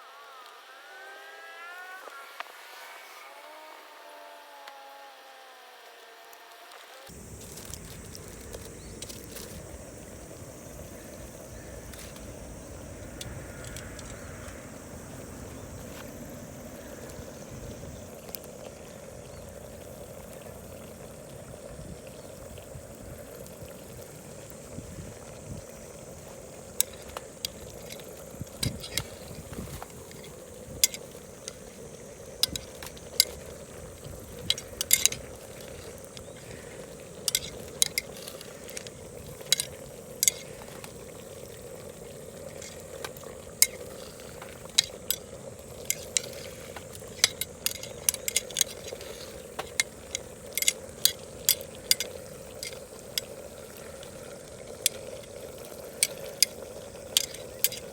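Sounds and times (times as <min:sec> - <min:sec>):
curry sizzling: 0:06.9 - 0:57.9
utensil clinking against pot: 0:26.8 - 0:31.6, 0:32.4 - 0:33.7, 0:34.3 - 0:41.0, 0:42.6 - 0:53.3, 0:56.0 - 0:57.9.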